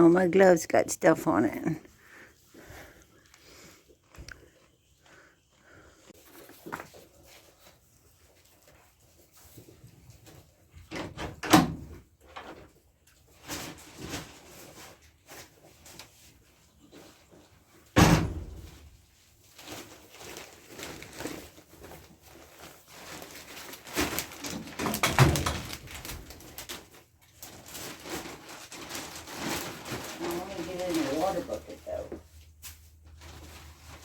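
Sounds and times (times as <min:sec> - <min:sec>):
rustling and handling noise: 0:00.0 - 0:11.0, 0:11.8 - 0:34.0
wooden door knocking and banging: 0:18.0 - 0:18.5.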